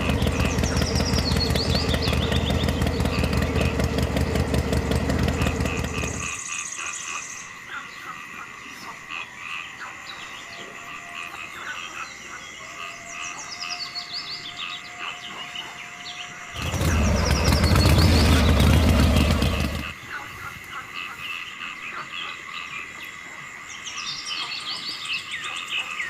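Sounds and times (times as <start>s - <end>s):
engine starting up: 0.0s - 6.4s, 16.5s - 19.9s
birds calling: 0.0s - 26.0s
frogs calling: 0.0s - 26.0s.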